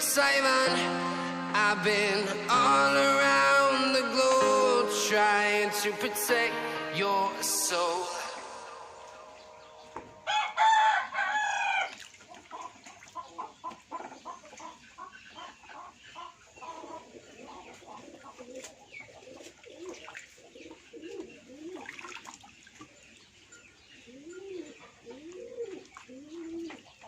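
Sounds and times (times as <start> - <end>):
rooster crowing: 10.2 - 11.9
small bird calls: 11.7 - 27.0
pigeon cooing: 16.6 - 22.2, 24.0 - 27.0.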